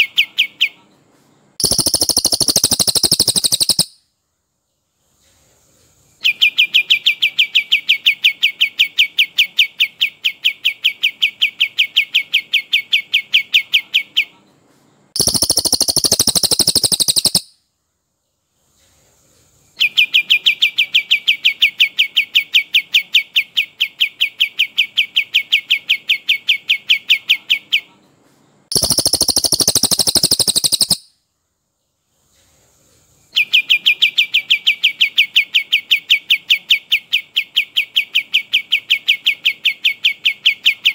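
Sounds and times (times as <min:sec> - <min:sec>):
songbird rolling trills: 0:01.6 - 0:03.9, 0:15.2 - 0:17.5, 0:28.7 - 0:31.0
harsh rattling bird calls: 0:01.6 - 0:04.0, 0:15.2 - 0:17.6, 0:28.7 - 0:31.1.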